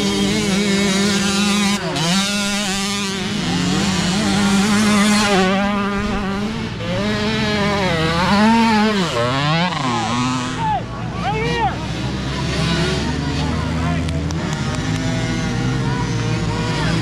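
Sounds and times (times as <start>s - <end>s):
engine holding steady note: 0.0s - 11.2s
dirt bike engines revving: 0.0s - 17.0s.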